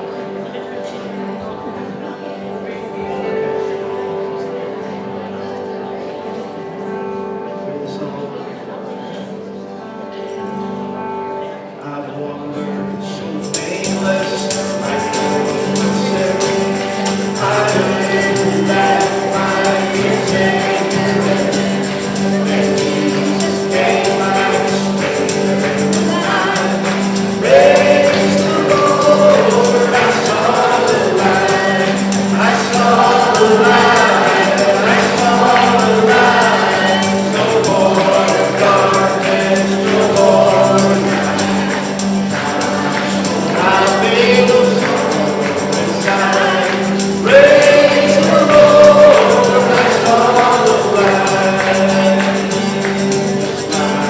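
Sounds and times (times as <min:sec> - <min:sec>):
group singing gospel song: 0:13.1 - 0:54.0
tambourine: 0:13.4 - 0:54.0
band playing: 0:14.0 - 0:54.0.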